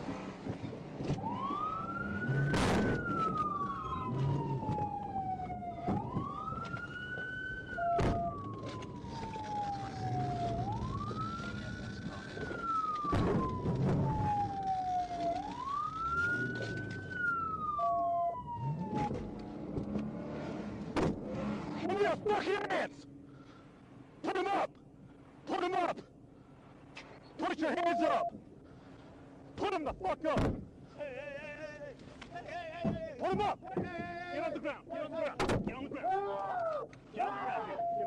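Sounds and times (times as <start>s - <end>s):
police siren wailing: 1.1s - 20.9s, 27.6s - 28.4s, 36.1s - 38.0s.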